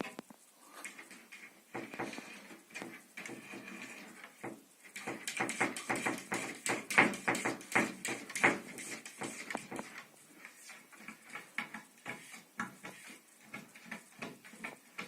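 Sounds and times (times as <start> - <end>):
light taps and knocks: 1.7 - 10.0.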